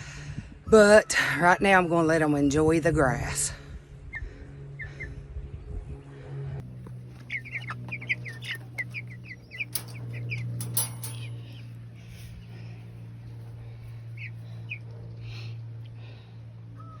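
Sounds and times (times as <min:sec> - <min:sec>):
low hum: 0:03.7 - 0:14.6
chicks peeping: 0:06.8 - 0:11.7, 0:14.2 - 0:14.8.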